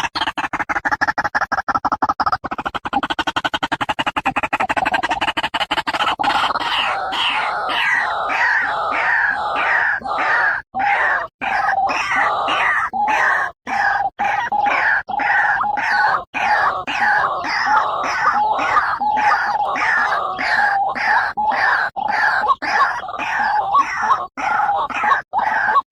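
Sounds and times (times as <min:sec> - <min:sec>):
waterhen calling: 0:05.9 - 0:25.8.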